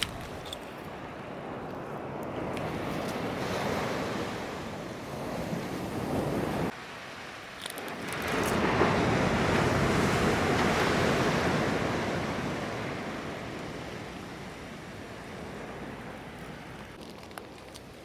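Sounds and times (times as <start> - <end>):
ocean wave breaking on beach: 8.3 - 16.1.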